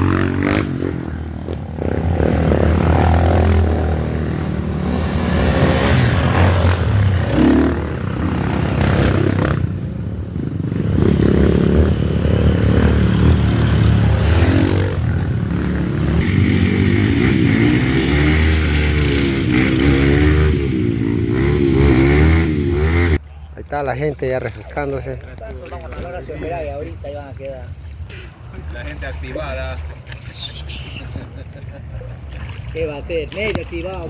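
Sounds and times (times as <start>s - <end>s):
motorcycle engines revving: 0.0s - 23.2s.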